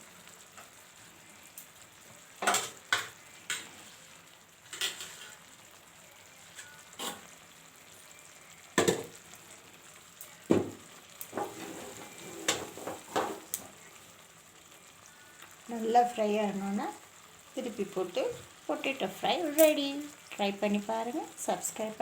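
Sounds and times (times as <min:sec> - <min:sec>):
potatoes sizzling in oil: 0:00.0 - 0:22.0
spatula scraping a pan: 0:03.5 - 0:05.4, 0:06.6 - 0:07.3, 0:11.3 - 0:13.6.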